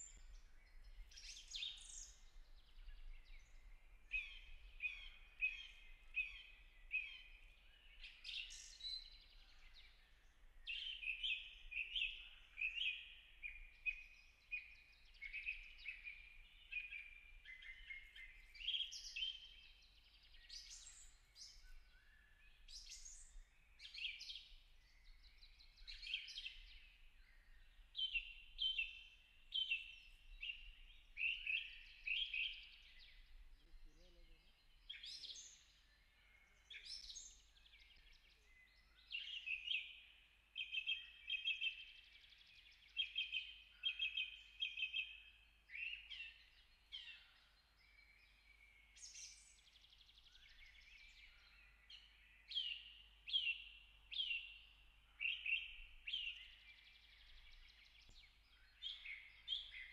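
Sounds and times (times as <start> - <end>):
faint outdoor background: 0.0 - 59.9.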